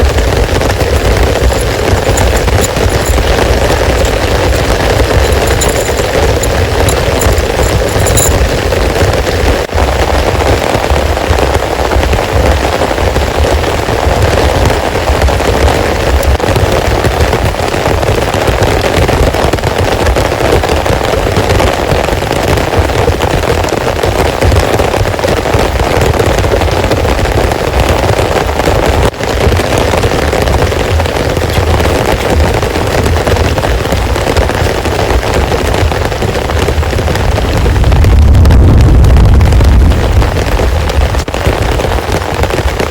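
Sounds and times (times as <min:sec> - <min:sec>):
heavy rain falling: 0:00.0 - 0:42.9
low rumble: 0:37.4 - 0:41.2.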